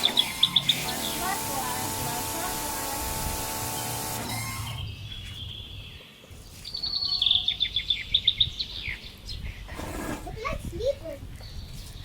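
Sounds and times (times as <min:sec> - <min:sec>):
songbird chirping: 0:04.6 - 0:09.7.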